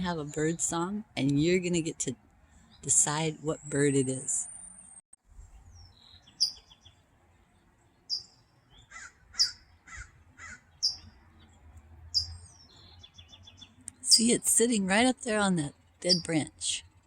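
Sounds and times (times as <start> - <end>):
songbird beep calls: 5.9 - 6.9, 8.1 - 9.6, 10.8 - 11.1, 12.2 - 12.5
crow cawing: 8.9 - 11.0.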